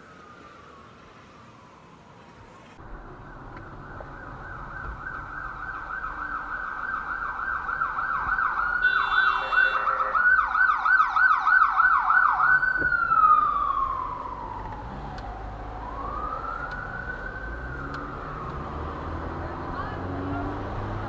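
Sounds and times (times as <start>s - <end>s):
emergency siren yelping: 2.8s - 19.9s
second higher siren: 3.2s - 19.2s.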